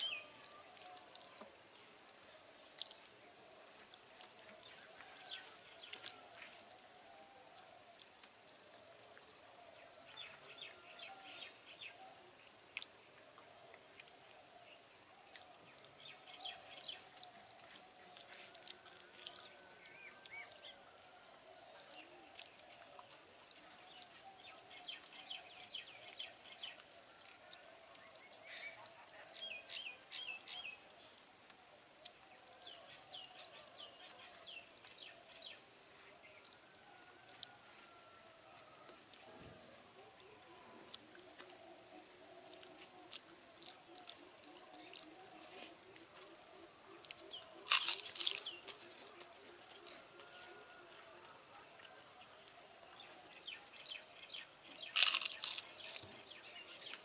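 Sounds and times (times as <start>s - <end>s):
faint birds chirping: 0.0s - 57.0s.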